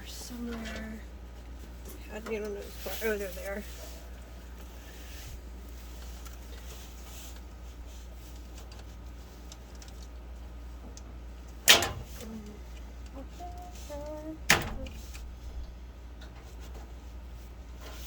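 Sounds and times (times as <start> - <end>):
steady low hum: 10.3 - 18.0.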